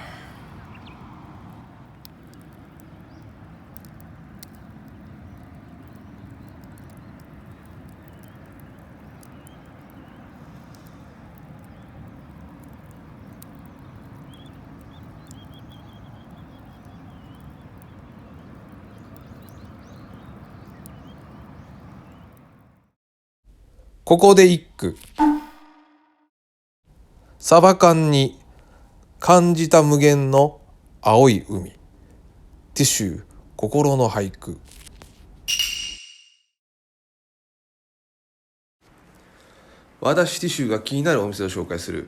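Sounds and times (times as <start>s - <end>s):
campfire crackling and popping: 0.0s - 22.9s, 26.9s - 35.5s
low outdoor rumble: 0.0s - 22.9s, 26.9s - 35.5s.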